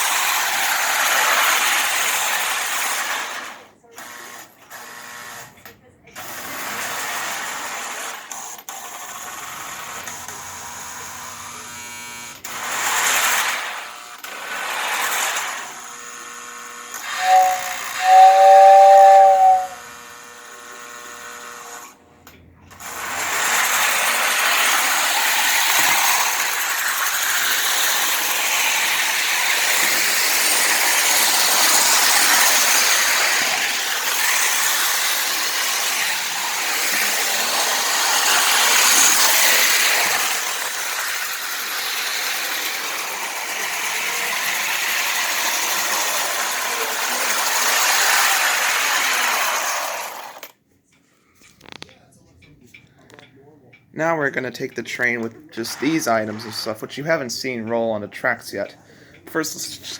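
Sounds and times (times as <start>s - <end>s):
toy train electric motor whirring: 0.0s - 22.0s, 22.7s - 50.6s, 55.0s - 57.0s
steam hisses: 17.1s - 19.8s, 23.5s - 50.2s
two-note steam whistle: 17.1s - 19.8s.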